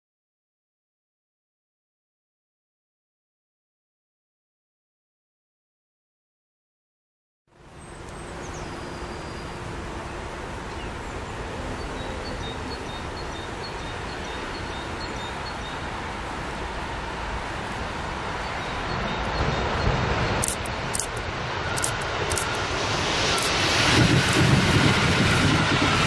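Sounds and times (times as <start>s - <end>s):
train rumbling rush: 8.3s - 26.0s.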